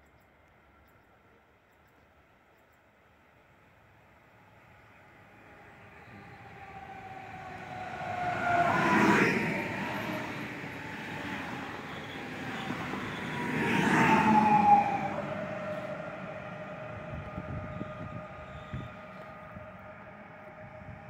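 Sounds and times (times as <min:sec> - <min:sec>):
train wheels rumbling on rail: 0:04.4 - 0:21.0
train whining tone: 0:04.4 - 0:21.0.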